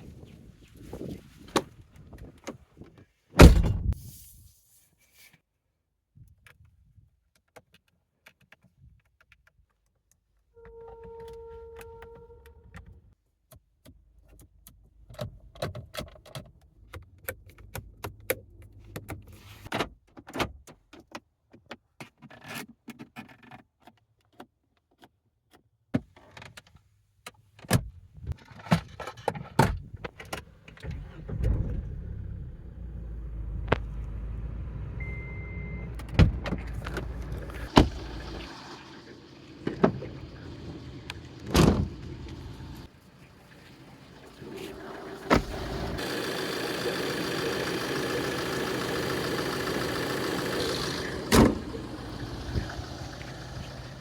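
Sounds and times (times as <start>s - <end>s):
short beep: 35.0s - 36.0s.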